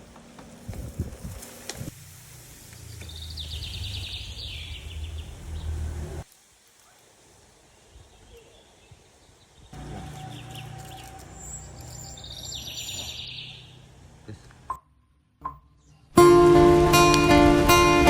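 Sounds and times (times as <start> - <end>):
birds chirping: 1.4 - 6.2, 7.6 - 14.8
bird trill: 3.0 - 5.9, 9.8 - 13.9
loud music: 16.2 - 18.0.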